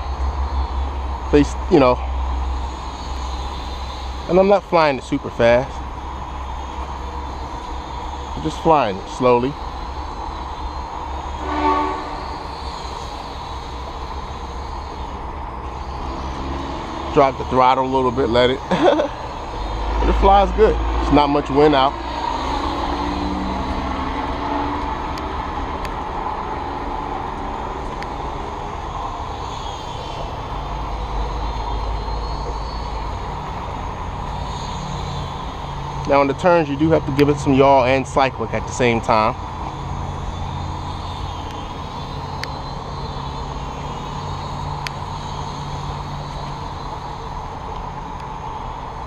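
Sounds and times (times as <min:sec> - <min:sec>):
falling rain hiss: 0:00.0 - 0:49.0
quadcopter motors whining: 0:00.0 - 0:49.0
horn-like pitched tone: 0:11.2 - 0:13.0.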